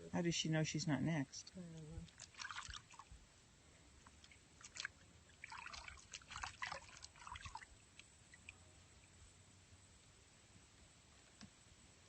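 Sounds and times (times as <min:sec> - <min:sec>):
water trickling and splashing: 0:00.2 - 0:09.2.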